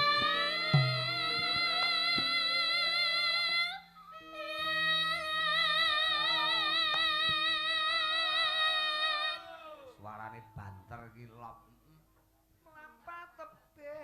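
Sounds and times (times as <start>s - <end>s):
instrumental accompaniment: 0.0s - 7.8s
girl singing high notes: 0.0s - 9.9s.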